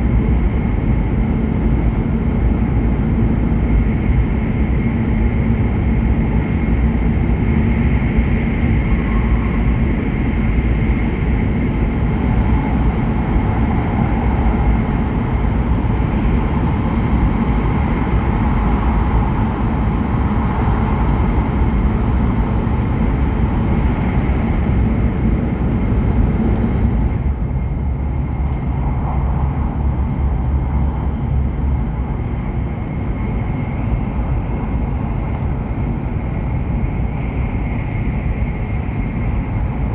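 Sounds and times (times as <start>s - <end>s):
train running at speed: 0.0s - 39.9s
faint whine: 4.4s - 39.9s.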